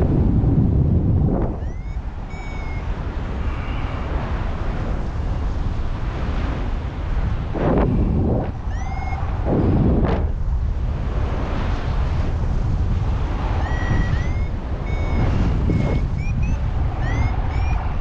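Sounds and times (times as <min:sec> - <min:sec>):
wind buffeting microphone: 0:00.0 - 0:18.0
short rising high tones: 0:01.6 - 0:02.9, 0:08.6 - 0:09.8, 0:13.6 - 0:18.0.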